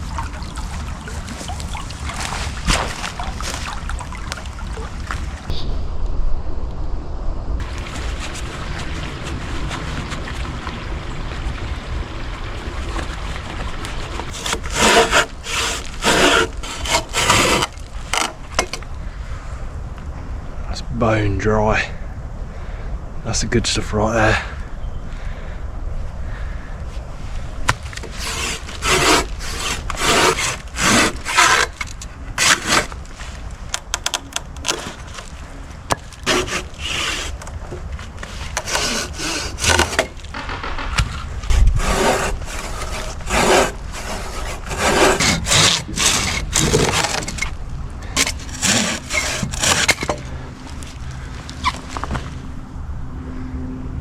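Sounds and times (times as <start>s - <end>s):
hand saw cutting wood: 14.2s - 18.8s, 27.7s - 33.0s, 33.8s - 35.3s, 35.9s - 40.3s, 41.5s - 47.5s, 48.1s - 50.4s.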